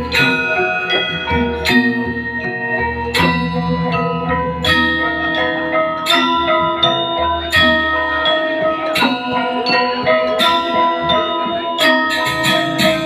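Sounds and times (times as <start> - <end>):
steady low tone: 0.0 - 8.9
gamelan metallophones ringing: 0.0 - 13.0.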